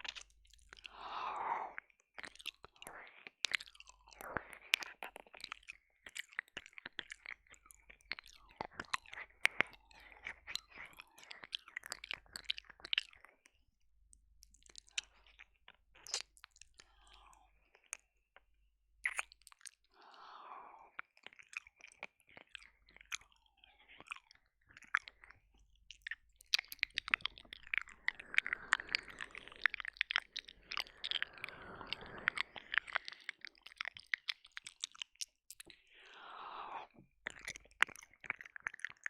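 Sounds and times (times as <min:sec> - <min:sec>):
wet mouth clicks and licks: 0:00.0 - 0:13.6, 0:14.4 - 0:20.0, 0:20.9 - 0:36.2, 0:36.8 - 0:39.0
soft breaths: 0:19.9 - 0:21.0, 0:27.7 - 0:33.4, 0:35.8 - 0:37.0.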